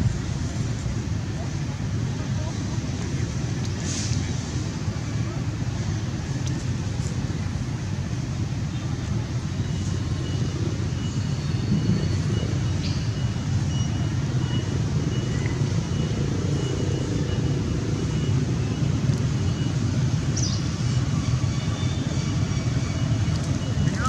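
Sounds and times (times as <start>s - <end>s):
low background rumble: 0.0s - 3.7s.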